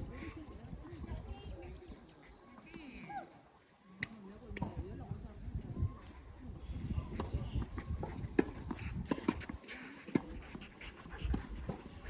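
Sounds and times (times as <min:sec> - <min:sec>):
tennis ball struck by rackets: 0:07.2 - 0:09.5.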